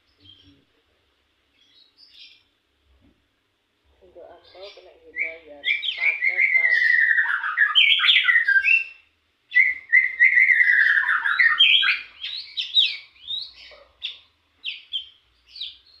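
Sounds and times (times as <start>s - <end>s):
bird singing rapid chattering notes: 4.2s - 16.0s.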